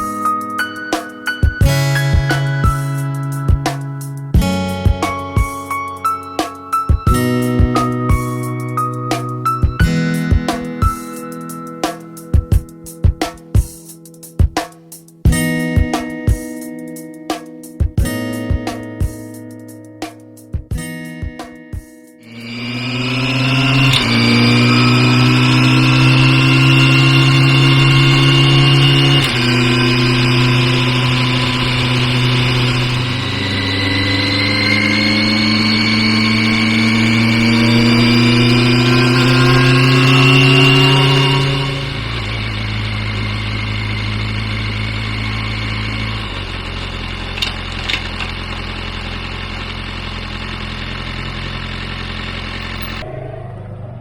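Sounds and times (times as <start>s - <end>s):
motorcycle engine running: 0.0s - 3.7s, 22.2s - 54.0s.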